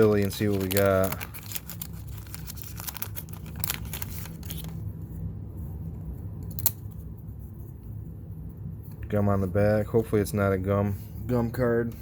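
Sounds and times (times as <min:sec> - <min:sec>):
wax paper wrapper crinkling and tearing: 0:00.0 - 0:04.9
steady low hum: 0:00.0 - 0:12.0.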